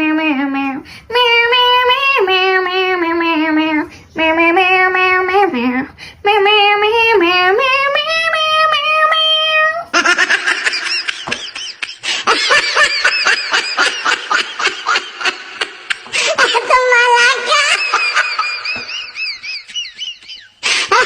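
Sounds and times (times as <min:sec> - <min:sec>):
high-pitched laughter: 0:09.9 - 0:21.0
high voice singing: 0:15.9 - 0:20.1.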